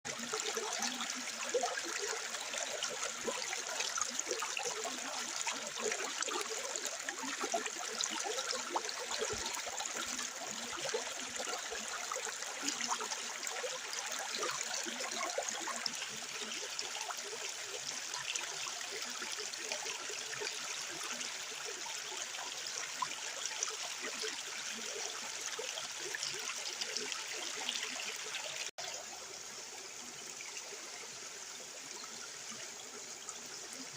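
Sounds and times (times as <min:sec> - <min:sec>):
water trickling and splashing: 0:00.1 - 0:33.9.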